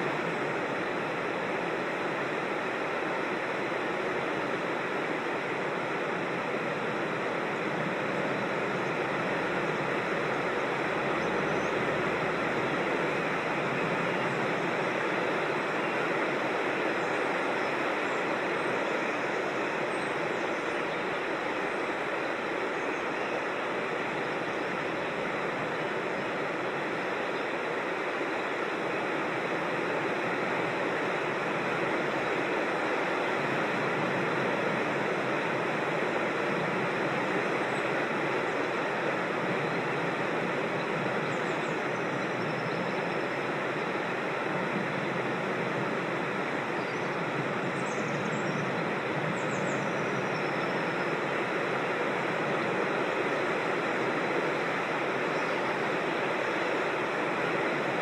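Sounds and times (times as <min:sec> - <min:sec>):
creek water rushing over rocks: 0:00.0 - 0:58.0.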